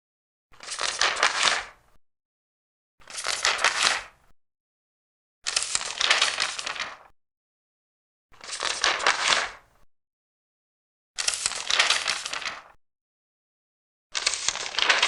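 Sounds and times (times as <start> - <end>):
paper pages turning: 0.6 - 1.8, 3.0 - 4.1, 5.5 - 7.1, 8.4 - 9.6, 11.2 - 12.8, 14.2 - 15.0.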